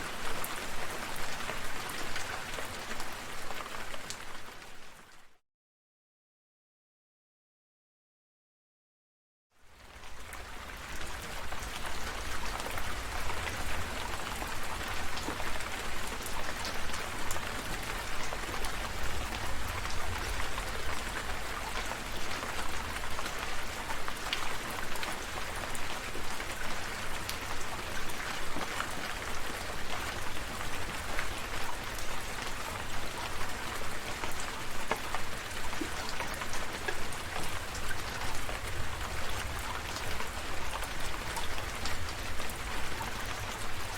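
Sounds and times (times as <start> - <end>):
rain drops hitting: 9.9 - 43.9.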